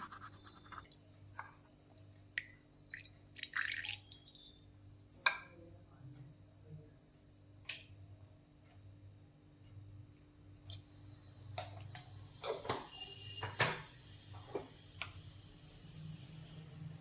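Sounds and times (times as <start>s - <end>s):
kitchenware clinking: 11.6s - 13.9s.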